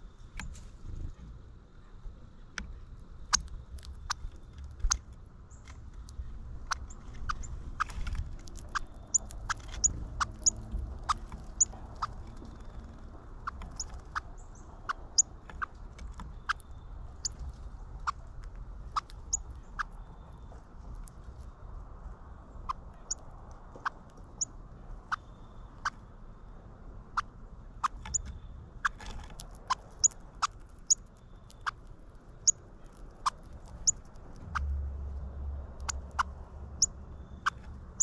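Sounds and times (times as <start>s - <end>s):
cardinal chip calls: 8.6s - 15.7s, 35.7s - 38.0s.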